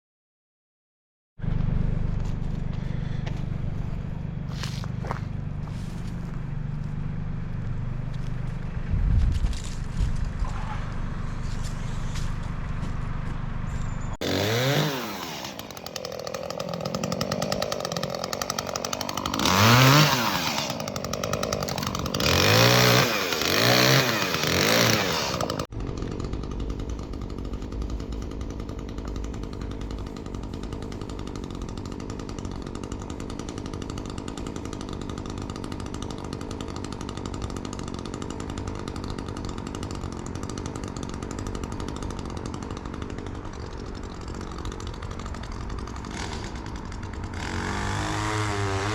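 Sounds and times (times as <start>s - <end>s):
low engine drone: 1.4s - 14.2s
chainsaw revving: 2.8s - 8.9s, 14.2s - 48.9s.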